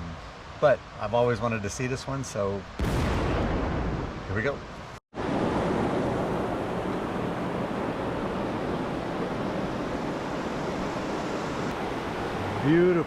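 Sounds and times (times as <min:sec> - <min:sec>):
fast-flowing creek rushing: 0:05.2 - 0:13.0.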